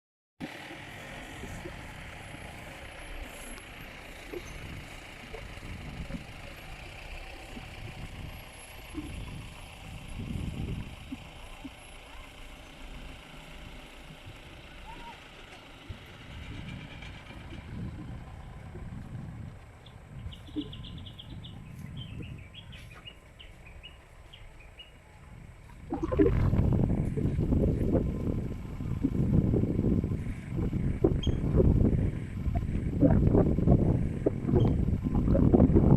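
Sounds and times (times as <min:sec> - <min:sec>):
vehicle engine rumbling: 0:00.4 - 0:35.9
bird chirping: 0:19.8 - 0:25.0.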